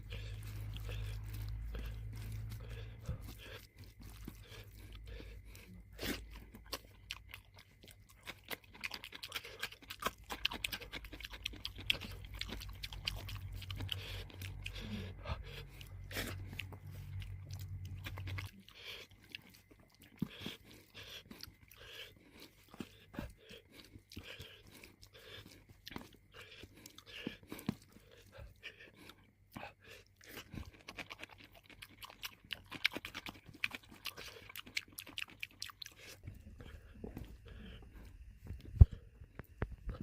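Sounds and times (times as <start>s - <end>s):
chewing and crunching food: 0.0s - 40.0s
low steady hum: 0.0s - 40.0s.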